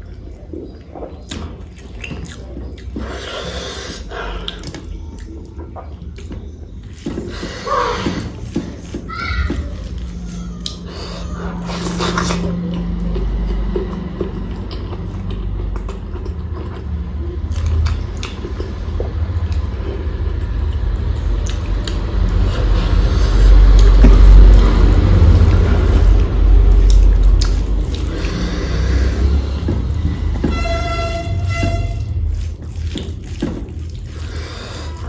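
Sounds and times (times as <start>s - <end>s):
close-miked chewing: 0.0s - 35.0s.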